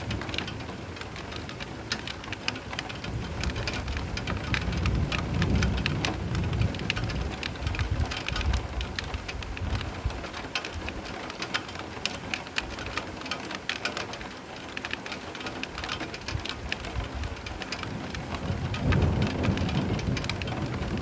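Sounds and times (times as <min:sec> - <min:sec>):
close raindrop splats: 0:00.0 - 0:21.0
steady rain: 0:00.0 - 0:21.0
distant thunder rumble: 0:02.9 - 0:10.1, 0:17.0 - 0:21.0.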